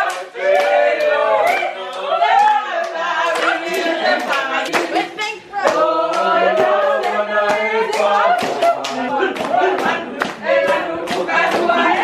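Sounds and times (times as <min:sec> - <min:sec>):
group of voices singing: 0:00.0 - 0:12.0.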